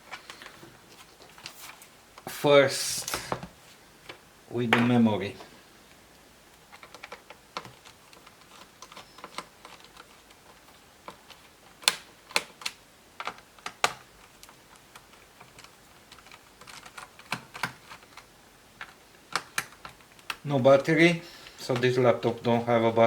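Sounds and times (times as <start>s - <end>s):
hands clicking on laptop case: 6.8s - 20.4s.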